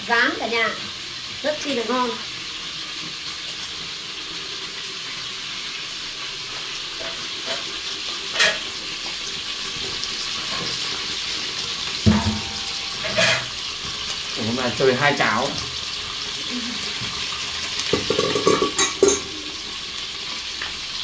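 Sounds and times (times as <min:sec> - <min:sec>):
meat sizzling in oil: 0:00.0 - 0:21.0
loud thump: 0:12.1 - 0:12.6.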